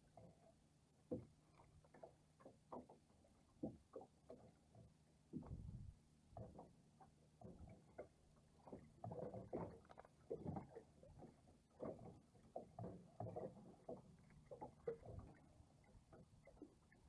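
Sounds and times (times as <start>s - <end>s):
water lapping against boat hull: 0.0s - 17.0s.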